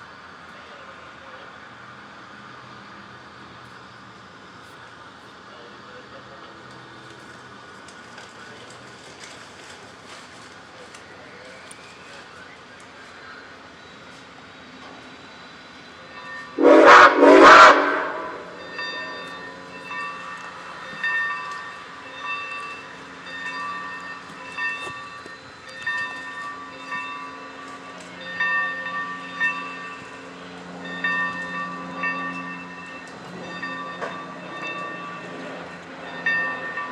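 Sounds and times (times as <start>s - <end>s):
locomotive bell ringing: 11.3s - 36.9s
steam locomotive whistle blasts: 16.4s - 19.4s.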